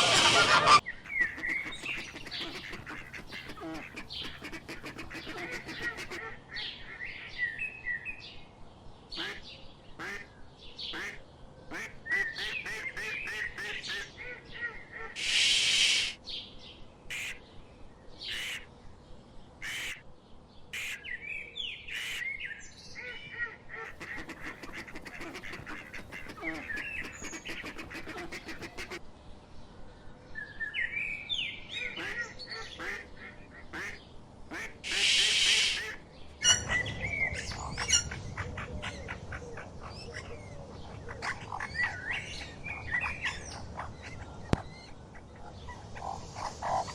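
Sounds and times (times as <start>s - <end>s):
loud rushing noise: 0.0s - 0.8s
ducks quacking: 0.0s - 7.0s, 10.0s - 10.3s, 10.9s - 16.2s, 17.1s - 17.4s, 23.4s - 29.0s, 31.9s - 40.4s, 41.0s - 42.1s
birds calling: 0.0s - 8.2s, 9.1s - 16.3s, 17.1s - 17.4s, 19.6s - 29.1s, 30.8s - 46.9s.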